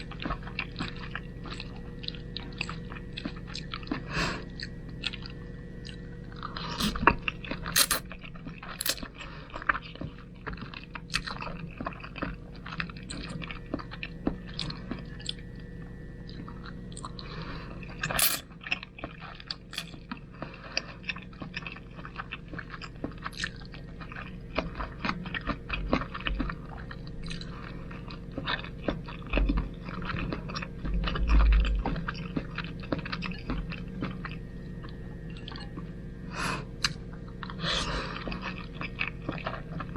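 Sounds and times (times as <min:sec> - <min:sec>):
wet chewing and slurping: 0:00.2 - 0:08.0, 0:08.7 - 0:15.4, 0:18.0 - 0:35.9, 0:36.8 - 0:39.9
utensil scraping: 0:07.8 - 0:08.0, 0:18.2 - 0:18.4.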